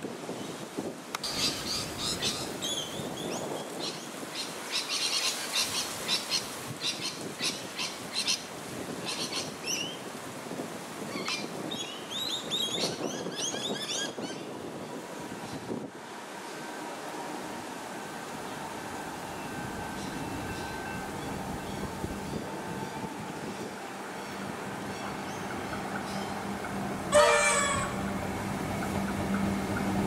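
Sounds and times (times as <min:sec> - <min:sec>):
steady background noise: 0:14.5 - 0:30.0.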